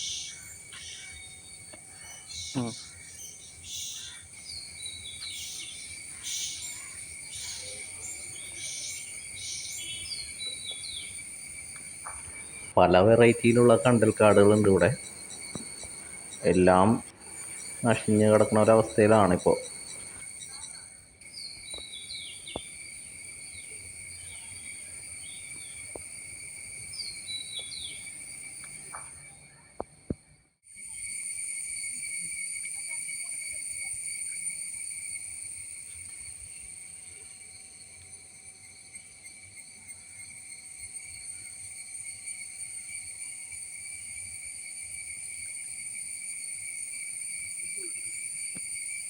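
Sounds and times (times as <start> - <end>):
small birds chirping: 0.0 - 30.3
cicadas droning: 0.0 - 49.0.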